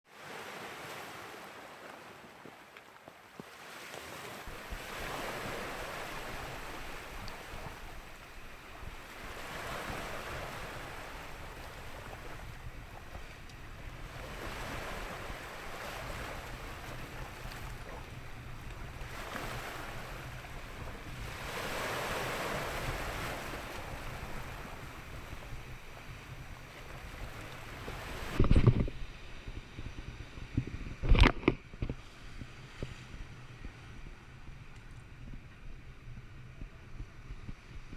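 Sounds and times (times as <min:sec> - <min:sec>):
ocean surf breaking: 0:00.1 - 0:28.4
wind rumble on microphone: 0:04.2 - 0:37.9.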